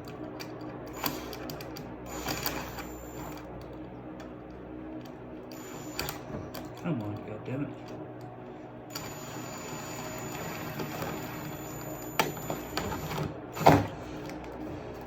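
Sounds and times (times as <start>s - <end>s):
thin high whine: 5.5s - 6.4s, 8.9s - 13.3s.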